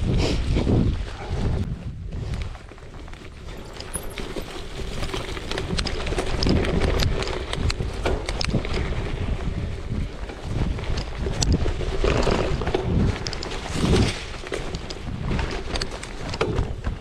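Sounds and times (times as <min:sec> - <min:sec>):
bike tyres crunching on gravel: 0:02.6 - 0:15.6
bike rattling clicks and knocks: 0:02.6 - 0:17.0.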